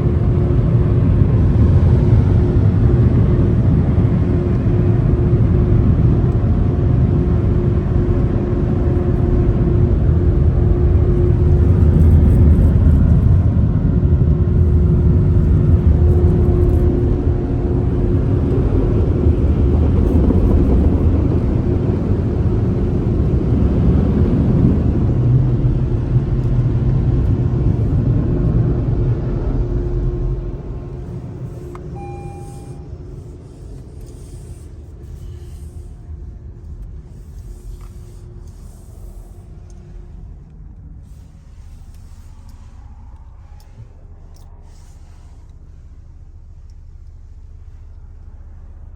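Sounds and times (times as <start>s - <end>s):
car wash machinery rumbling: 0.0s - 48.9s
constant hum: 0.0s - 48.9s.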